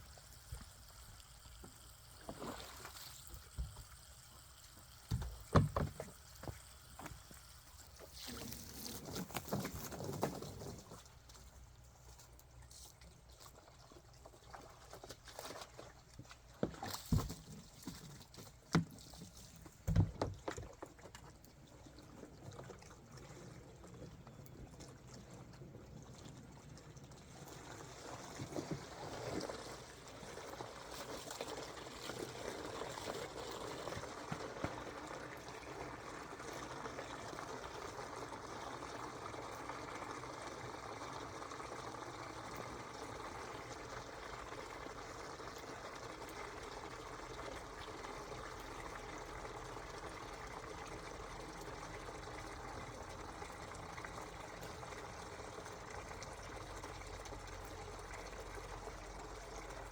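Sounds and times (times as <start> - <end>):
water pouring into container: 0.0 - 11.6, 12.8 - 59.9
knocks: 5.1 - 6.2.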